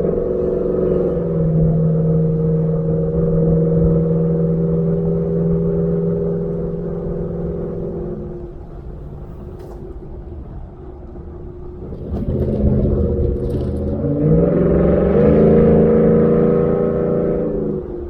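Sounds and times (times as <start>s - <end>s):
truck exhaust drone accelerating: 0.0s - 18.0s.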